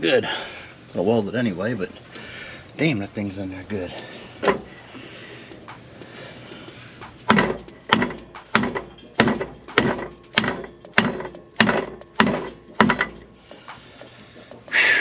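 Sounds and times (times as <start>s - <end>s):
hammer striking metal pipe: 4.4s - 4.8s, 7.3s - 13.8s.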